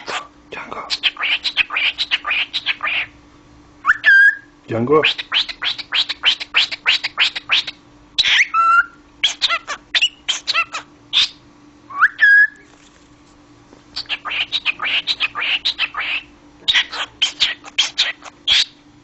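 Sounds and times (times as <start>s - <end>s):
cockatiel chattering: 0.0s - 3.2s, 5.0s - 11.4s, 14.0s - 18.8s
cockatiel whistled notes: 3.8s - 4.5s, 11.9s - 12.6s.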